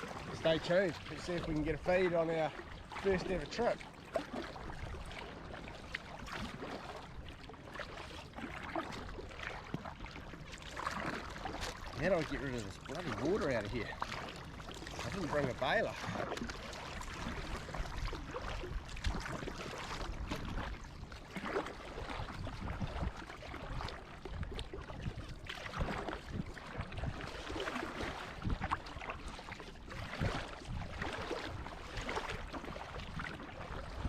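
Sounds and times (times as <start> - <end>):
water sloshing around kayak: 0.0 - 34.0
wind rumbling on microphone: 14.6 - 34.0.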